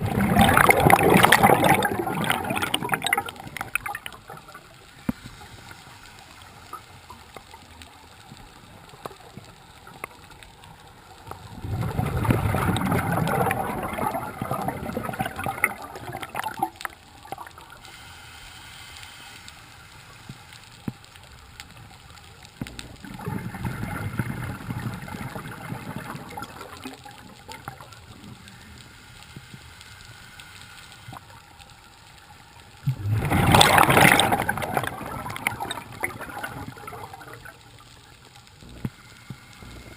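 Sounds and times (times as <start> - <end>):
bubbles gurgling underwater: 0.0 - 4.7, 11.2 - 17.7, 22.7 - 28.1, 32.8 - 38.0.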